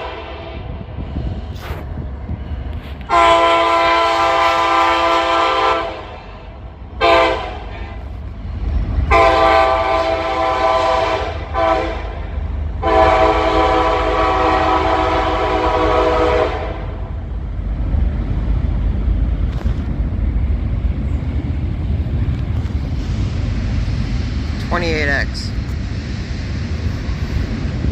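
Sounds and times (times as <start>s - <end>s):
locomotive air horn blasts: 0.0s - 0.8s, 3.1s - 6.2s, 7.0s - 8.0s, 9.1s - 12.2s, 12.8s - 17.1s
passing train rumble: 0.0s - 27.9s.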